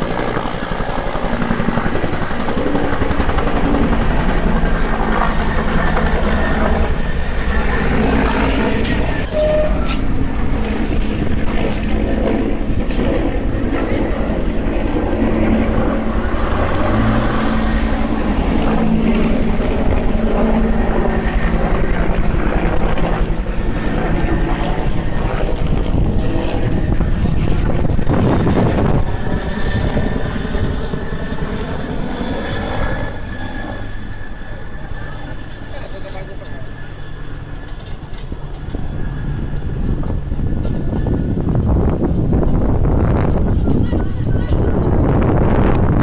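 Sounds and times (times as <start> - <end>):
aircraft engines droning overhead: 0.0 - 46.0.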